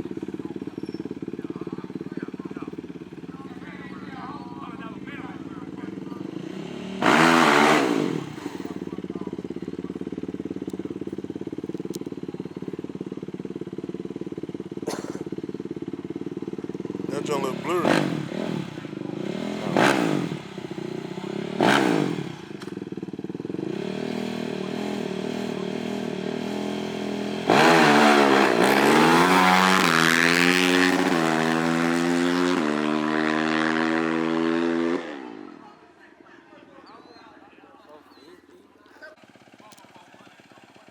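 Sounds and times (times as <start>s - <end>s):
small engine idling: 0.0s - 31.2s, 35.5s - 40.9s
engine rushing past: 17.1s - 22.7s, 23.5s - 35.6s.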